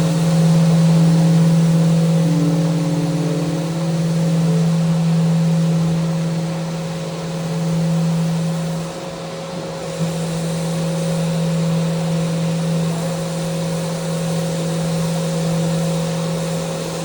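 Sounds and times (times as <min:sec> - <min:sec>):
electric sander running: 0:00.0 - 0:08.7.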